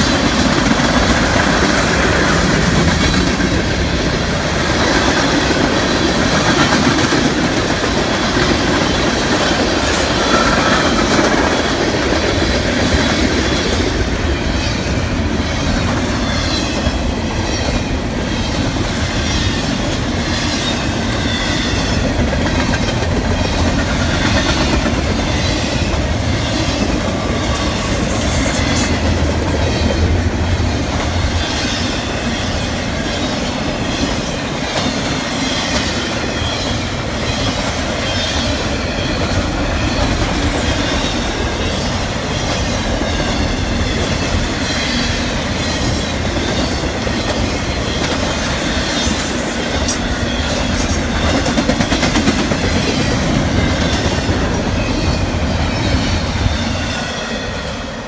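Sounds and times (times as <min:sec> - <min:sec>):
steel wheels on rail: 0:00.0 - 0:58.0
high wheel squeal: 0:09.9 - 0:11.1.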